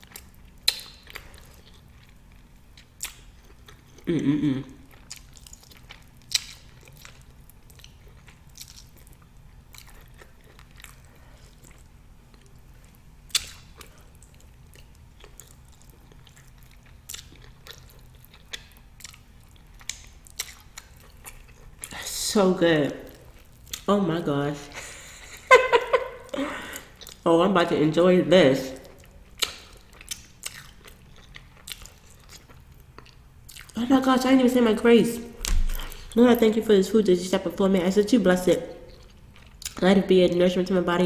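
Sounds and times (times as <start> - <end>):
person chewing meat: 0.0 - 22.0, 23.0 - 23.9, 26.0 - 27.3, 28.7 - 33.8, 38.7 - 39.8
short vocal sound: 4.1 - 4.8.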